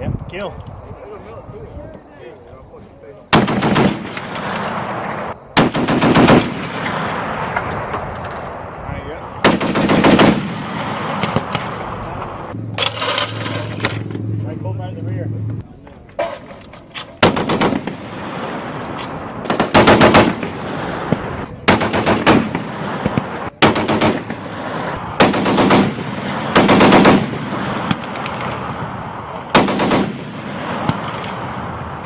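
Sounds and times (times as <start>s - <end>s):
heavy machine gun bursts: 3.3s - 5.0s, 5.6s - 7.2s, 9.4s - 11.5s, 17.2s - 18.5s, 19.5s - 24.6s, 25.2s - 28.2s, 29.6s - 30.4s.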